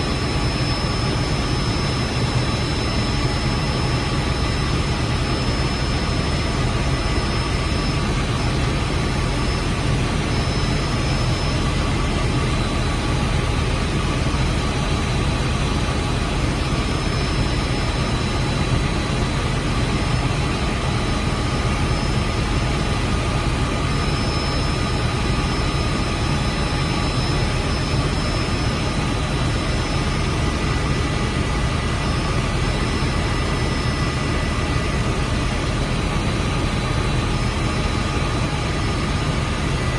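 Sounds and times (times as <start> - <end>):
helicopter engine and rotor drone: 0.0 - 39.9
high-pitched whine: 0.0 - 39.9.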